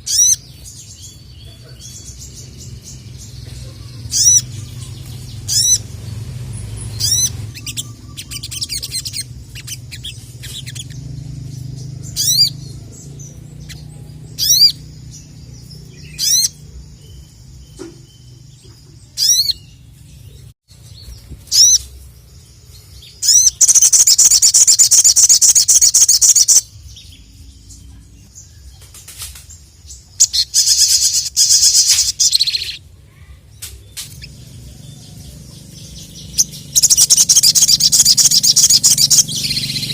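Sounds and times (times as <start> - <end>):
bird trilled song: 0.0 - 39.9.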